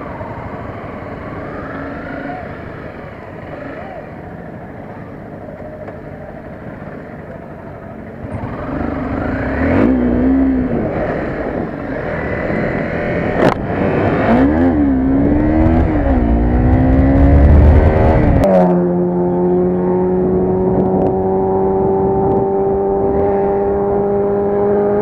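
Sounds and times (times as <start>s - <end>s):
motorcycle engine accelerating: 0.0s - 25.0s
wind rush on microphone: 20.1s - 24.4s.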